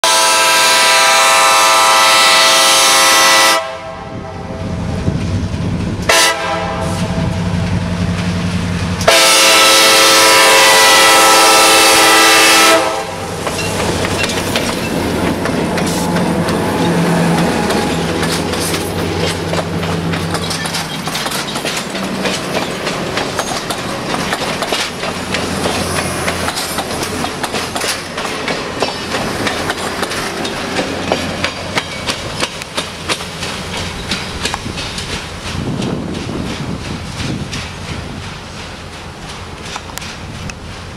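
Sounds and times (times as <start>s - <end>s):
train air horn blasts: 0.0s - 4.6s, 6.1s - 7.4s, 9.0s - 13.4s
locomotive engine hum: 0.2s - 40.9s
wheels clicking over rail joints: 12.8s - 40.9s.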